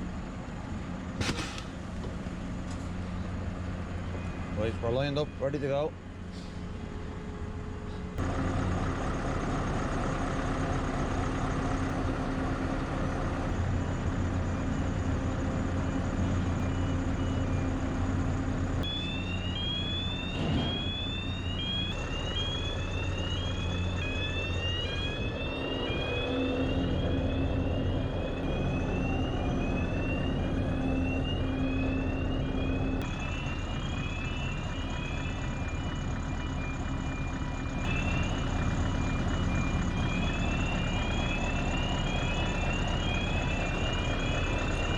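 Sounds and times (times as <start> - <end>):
diesel engine running: 0.0 - 44.9
electronic warning beeper chirps: 18.8 - 44.9.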